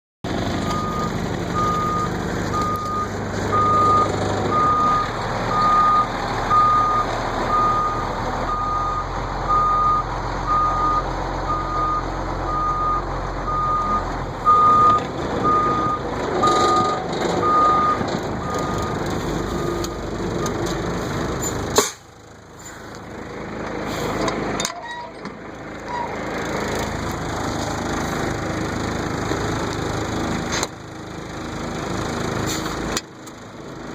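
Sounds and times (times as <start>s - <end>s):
truck engine rumble: 0.2s - 33.9s
reversing alarm beeping: 0.6s - 20.1s.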